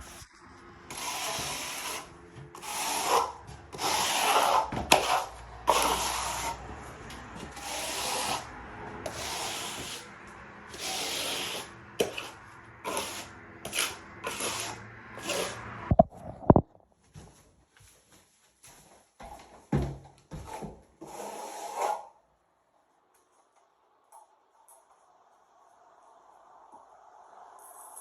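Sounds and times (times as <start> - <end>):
trowel scraping plaster: 0.0 - 16.0, 20.3 - 22.2.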